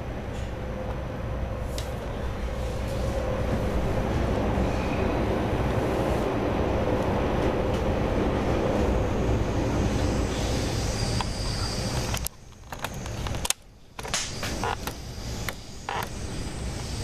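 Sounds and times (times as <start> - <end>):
moving train rumble and hiss: 0.0 - 17.0.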